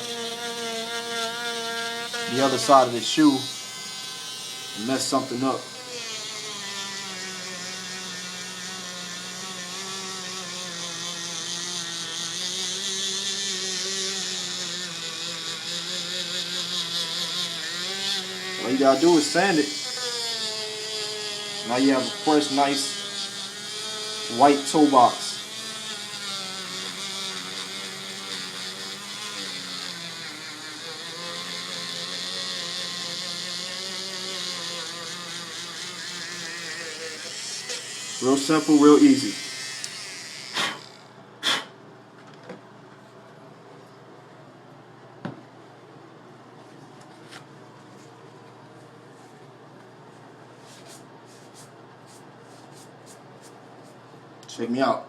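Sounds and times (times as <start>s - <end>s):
electric sander whining: 0.0s - 41.2s.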